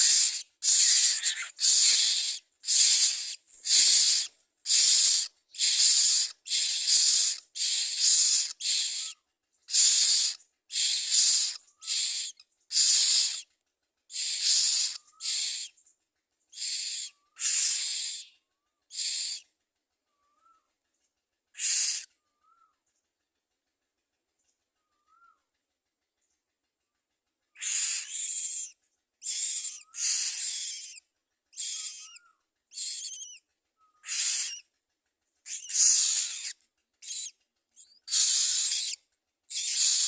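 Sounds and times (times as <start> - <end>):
nestlings hissing rasps: 0.0 - 13.5, 14.1 - 15.8, 16.5 - 18.3, 18.9 - 19.4, 21.6 - 22.1, 27.6 - 31.0, 31.6 - 33.4, 34.0 - 34.6, 35.5 - 40.0.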